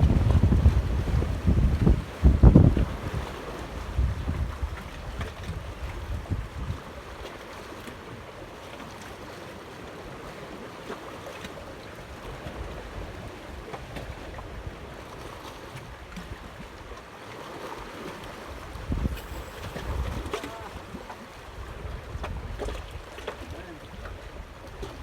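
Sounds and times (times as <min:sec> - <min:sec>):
wind buffeting microphone: 0:00.0 - 0:06.9, 0:18.6 - 0:23.2
wind: 0:00.0 - 0:25.0
moving water hiss: 0:18.8 - 0:21.2.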